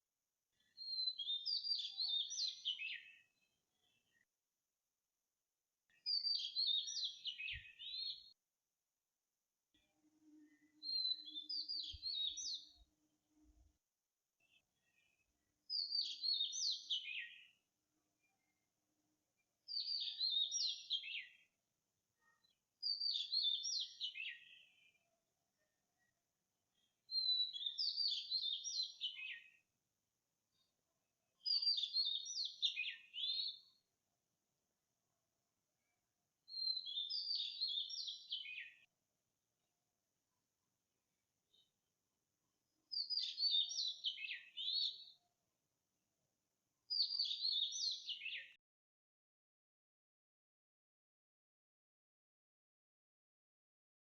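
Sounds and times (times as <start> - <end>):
songbird singing: 0.5 - 4.3, 5.9 - 8.4, 9.7 - 13.7, 14.4 - 17.6, 19.7 - 21.5, 22.2 - 29.6, 31.4 - 33.8, 35.8 - 38.9, 42.9 - 45.3, 46.9 - 48.6.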